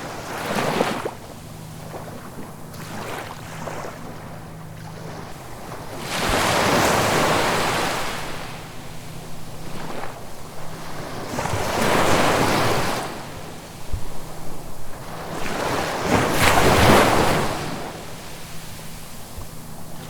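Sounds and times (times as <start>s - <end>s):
ocean waves washing onto shore: 0.0s - 20.0s.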